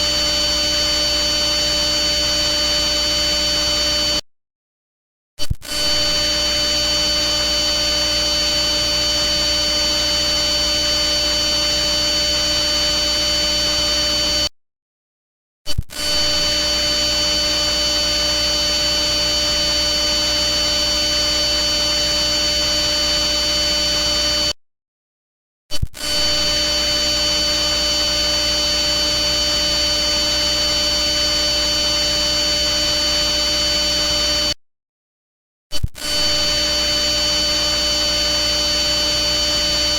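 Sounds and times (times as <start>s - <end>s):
electrical hum and buzz: 0.0s - 4.1s, 26.4s - 34.5s, 36.2s - 39.9s.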